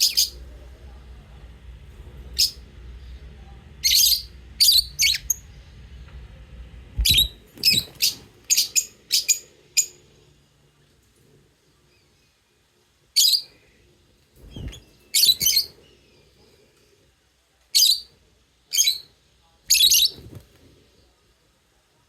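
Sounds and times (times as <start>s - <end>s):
lovebirds chirping: 0.0s - 0.4s, 7.0s - 10.1s, 13.1s - 13.8s, 14.4s - 16.6s, 19.7s - 20.4s
soft low rumble: 0.0s - 7.9s.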